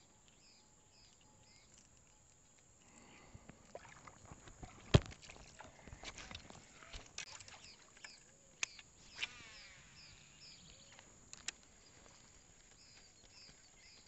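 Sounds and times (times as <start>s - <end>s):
bird high chirps: 0.0s - 2.3s, 7.3s - 11.0s
sharp clicks: 8.0s - 11.7s
brief whir: 9.0s - 10.6s.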